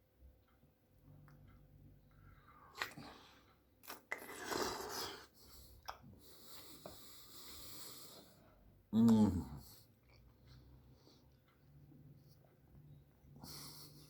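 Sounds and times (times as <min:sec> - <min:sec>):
person chewing with wet mouth noises: 0:02.2 - 0:06.2, 0:09.9 - 0:11.4.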